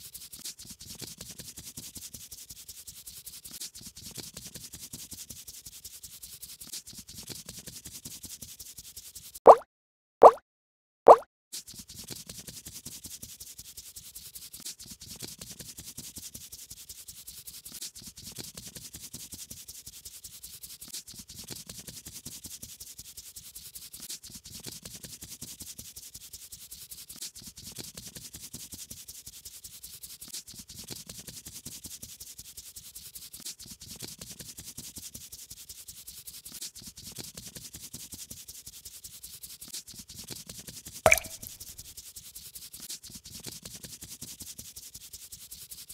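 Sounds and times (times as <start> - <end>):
paintbrush rubbing over paper: 0.0 - 9.4, 11.6 - 21.0, 42.0 - 45.9.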